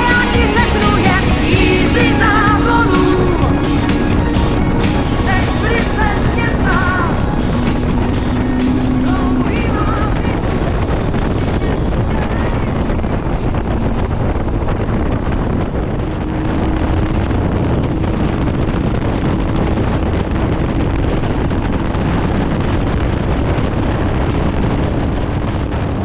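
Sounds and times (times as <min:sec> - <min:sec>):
motorcycle engine running: 0:00.0 - 0:16.3
wind rumble on microphone: 0:05.4 - 0:26.0.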